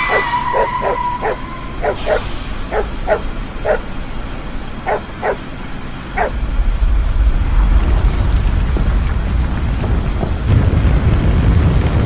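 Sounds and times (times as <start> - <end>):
dog barking: 0.0 - 3.9, 4.8 - 5.4, 6.2 - 6.4
low rumble: 6.1 - 12.0.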